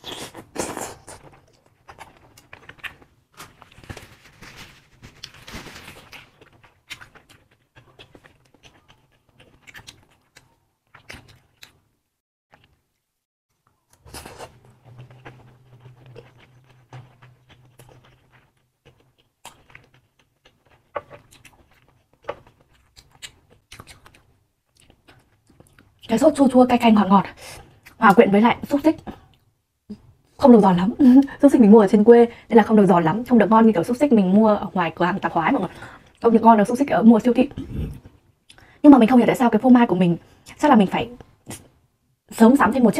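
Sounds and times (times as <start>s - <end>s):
soft chewing and mouth clicks: 0.1s - 4.1s, 6.0s - 11.8s, 12.5s - 26.1s, 29.0s - 30.0s
tissue rustling: 3.4s - 6.2s.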